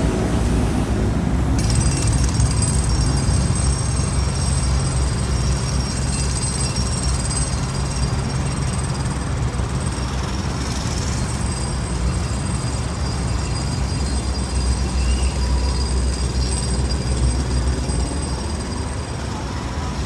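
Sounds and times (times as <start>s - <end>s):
heavy machinery engine rumble: 0.0s - 6.5s.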